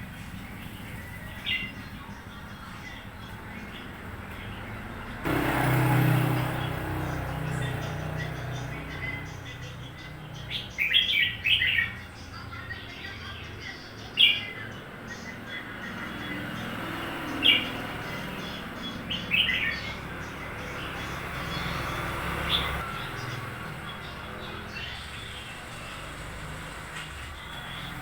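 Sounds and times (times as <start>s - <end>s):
bird calling: 4.6s - 26.0s.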